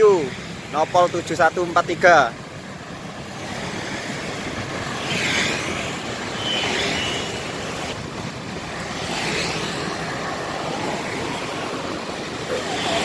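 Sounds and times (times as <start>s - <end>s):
rain and tyres hissing: 0.0s - 13.0s.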